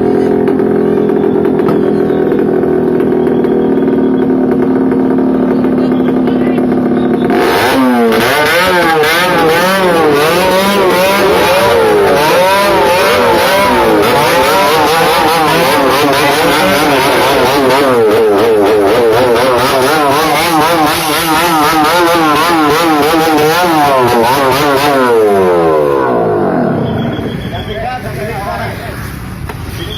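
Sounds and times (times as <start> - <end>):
motorcycles revving loudly: 0.0 - 29.9.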